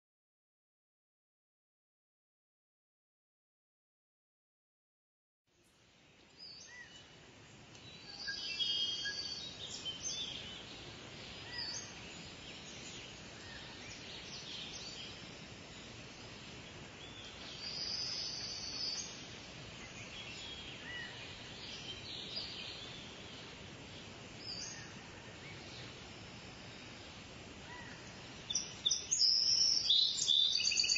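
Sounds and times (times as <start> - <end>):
steady hiss: 5.6 - 30.9
birds chirping and whistling: 7.8 - 10.8, 11.4 - 15.4, 28.5 - 30.9.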